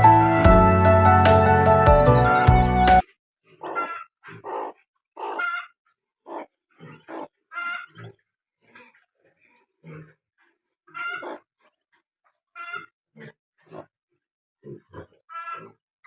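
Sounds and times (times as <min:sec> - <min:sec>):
background music: 0:00.0 - 0:03.0
duck quacks: 0:03.6 - 0:05.8, 0:06.4 - 0:08.0, 0:10.9 - 0:11.5.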